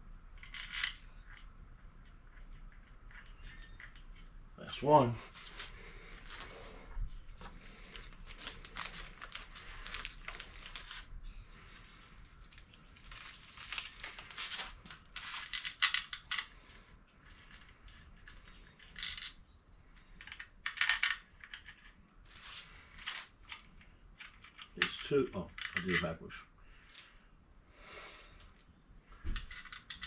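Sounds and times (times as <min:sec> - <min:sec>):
metal tools and bolts clinking: 0:24.2 - 0:26.2.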